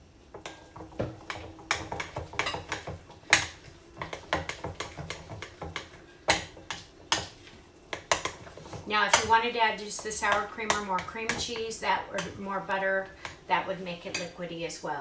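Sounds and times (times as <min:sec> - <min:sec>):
utensil scraping a mixing bowl: 0:00.6 - 0:12.4.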